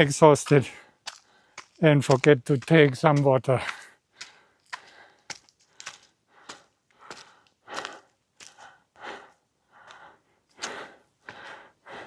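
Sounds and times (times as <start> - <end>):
footsteps on trail: 0.0 - 12.0
man breathing hard: 0.8 - 1.7, 3.7 - 12.0.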